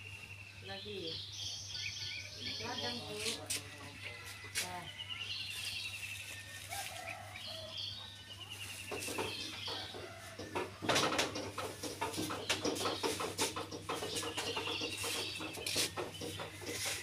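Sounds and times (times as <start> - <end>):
birds chirping and calling: 0.0 - 17.0
clucking calls: 8.7 - 17.0
rattling bird trill: 9.0 - 17.0.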